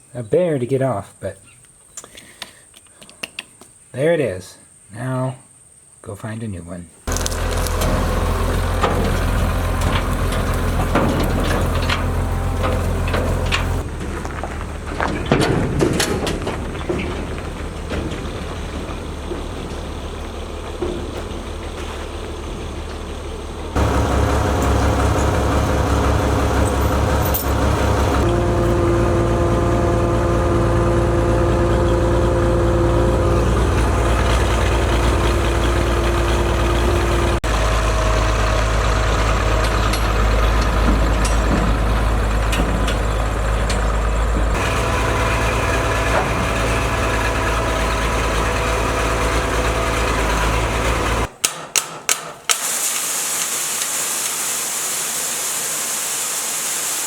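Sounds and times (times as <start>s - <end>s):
road noise: 7.0s - 51.4s
vehicle engine running: 7.1s - 51.4s.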